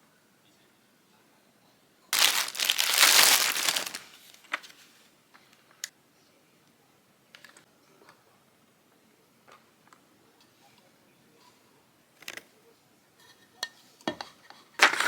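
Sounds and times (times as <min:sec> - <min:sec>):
packaging crinkling and rustling: 0:02.2 - 0:04.8.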